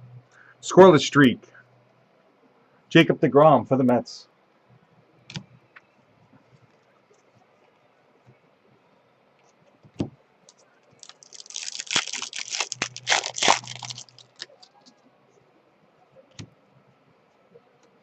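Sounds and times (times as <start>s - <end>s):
foil wrapper tearing and crinkling: 11.0s - 14.6s.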